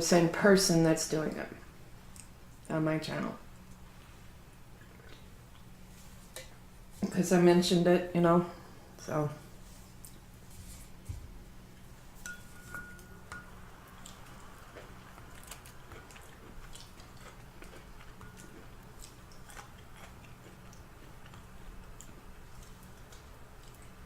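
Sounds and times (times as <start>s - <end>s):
steady low hum: 0.0s - 24.0s
person chewing: 13.9s - 24.0s.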